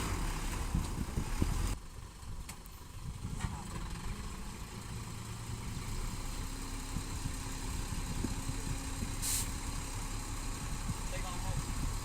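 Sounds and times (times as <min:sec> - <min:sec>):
heavy diesel engine running: 0:00.0 - 0:12.0
short sharp hiss: 0:09.2 - 0:09.6.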